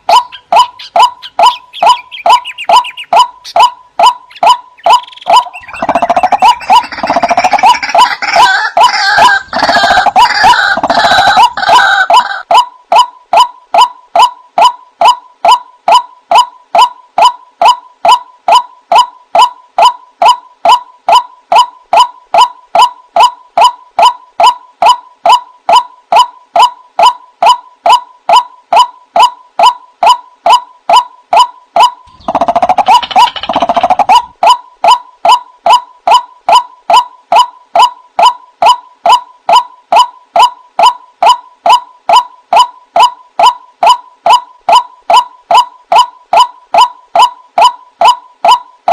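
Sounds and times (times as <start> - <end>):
waterhen calling: 0.0 - 13.0, 31.8 - 41.4.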